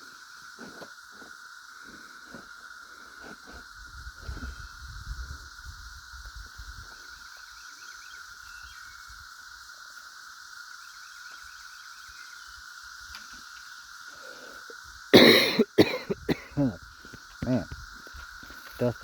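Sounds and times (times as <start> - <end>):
cicadas droning: 0.0 - 19.0
faint bird chirps: 7.1 - 9.2
person coughing: 15.2 - 16.8.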